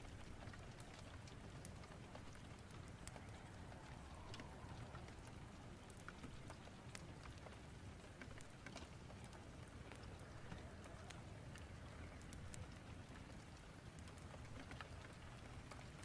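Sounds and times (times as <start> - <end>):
rain hissing: 0.0 - 8.2
fire crackling: 0.0 - 16.0.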